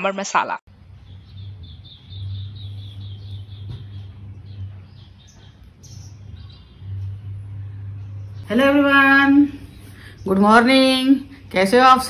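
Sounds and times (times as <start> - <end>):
steady low hum: 0.7 - 12.0
small bird chirping: 0.9 - 8.5.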